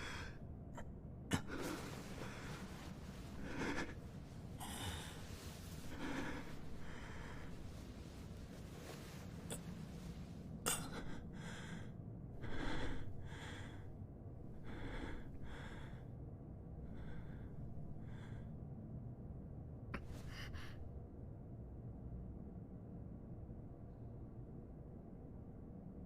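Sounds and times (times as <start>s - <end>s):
heavy breaths and gasps: 0.0s - 0.4s, 1.3s - 13.9s, 14.5s - 16.1s, 20.0s - 20.8s.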